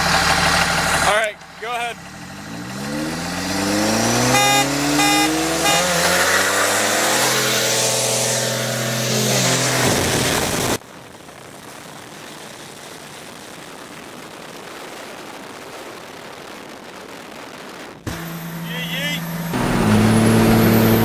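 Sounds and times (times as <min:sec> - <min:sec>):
diesel engine revving: 0:00.0 - 0:10.8, 0:18.1 - 0:21.0
tires spinning hiss: 0:02.0 - 0:10.8
car horn honks: 0:03.9 - 0:07.7.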